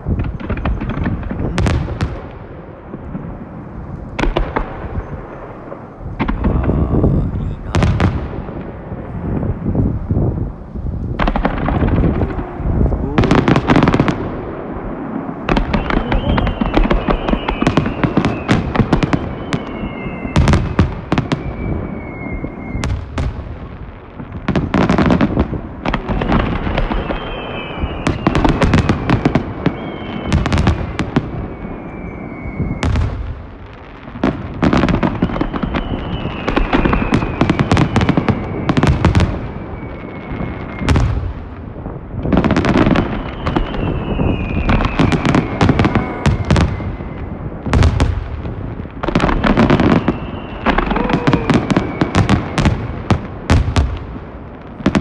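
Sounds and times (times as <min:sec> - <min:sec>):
falling firework whistles: 0:00.1 - 0:03.3, 0:11.2 - 0:23.6, 0:25.9 - 0:48.3, 0:49.0 - 0:54.0.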